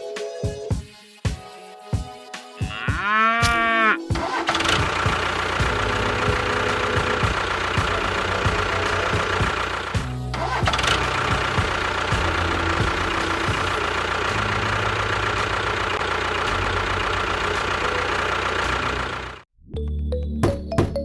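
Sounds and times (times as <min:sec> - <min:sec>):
background music: 0:00.0 - 0:13.8
small engine running with knock: 0:04.2 - 0:19.4.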